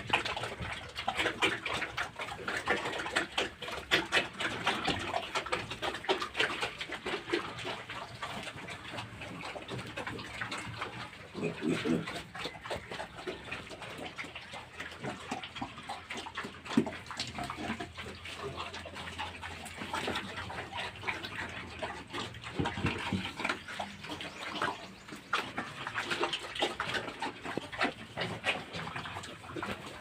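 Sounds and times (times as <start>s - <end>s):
piglets calling: 17.4s - 30.0s.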